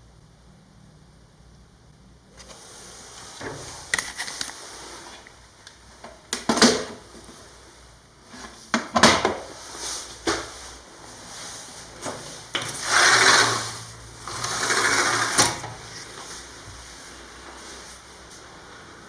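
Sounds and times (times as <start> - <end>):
rubbing or scraping: 9.5 - 19.0.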